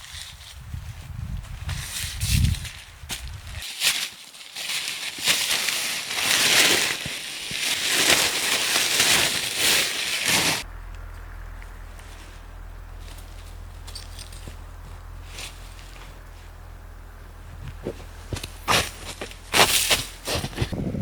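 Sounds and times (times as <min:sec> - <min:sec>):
footsteps crunching through snow: 0:00.0 - 0:10.7, 0:11.8 - 0:21.0
low steady rumble: 0:10.3 - 0:21.0.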